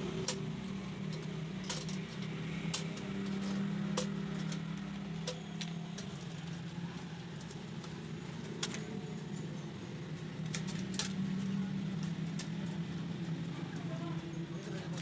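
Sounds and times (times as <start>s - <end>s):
light sharp clicks and taps: 1.1s - 6.1s.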